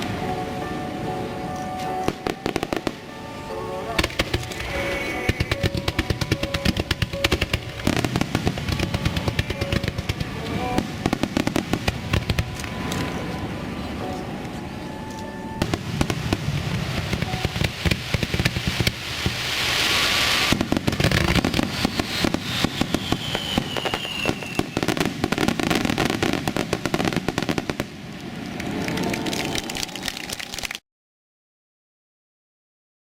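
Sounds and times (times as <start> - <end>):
fireworks exploding: 1.8 - 14.4, 15.4 - 30.6
fireworks hissing rush: 1.9 - 14.0, 15.6 - 29.0
falling whistle: 4.4 - 5.9, 21.6 - 25.1.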